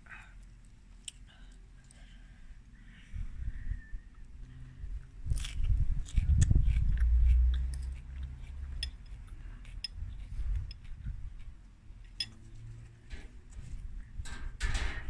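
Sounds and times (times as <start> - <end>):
chewing lettuce: 5.0 - 11.6
metal spoon clinking on bowl: 12.1 - 12.4.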